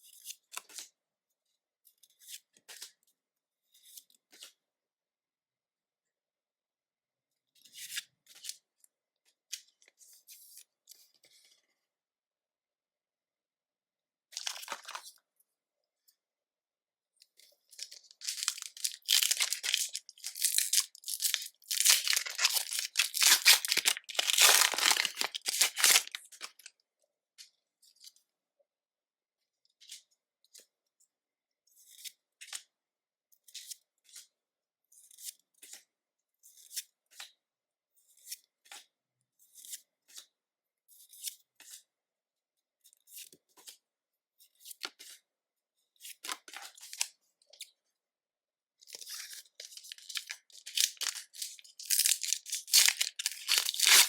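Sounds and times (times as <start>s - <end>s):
foil wrapper tearing and crinkling: 18.2s - 26.7s, 49.7s - 54.0s.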